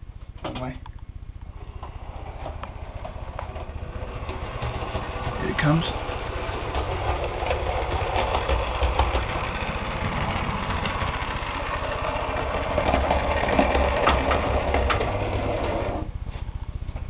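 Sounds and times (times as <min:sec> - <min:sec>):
wheels clicking over rails: 0:00.2 - 0:17.0
model train motor humming: 0:01.4 - 0:16.4.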